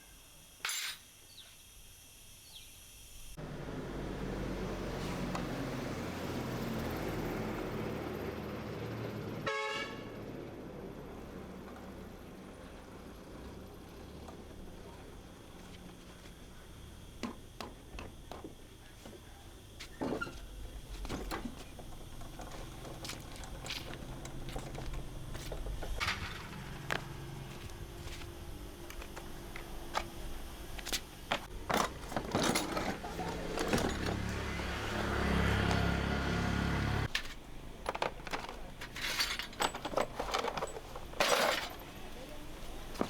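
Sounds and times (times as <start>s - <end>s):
hand tools clinking on metal: 0.6s - 1.1s, 21.0s - 28.2s, 28.8s - 34.7s, 37.1s - 43.0s
motor running: 20.5s - 37.1s.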